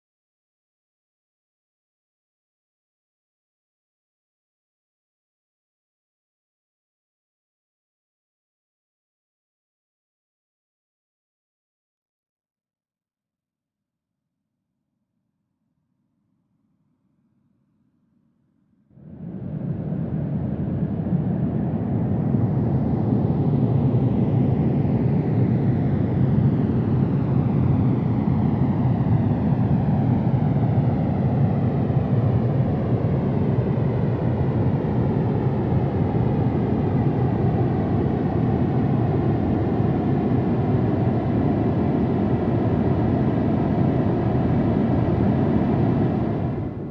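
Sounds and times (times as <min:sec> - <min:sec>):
jet airliner engines roaring: 0:19.0 - 0:46.9.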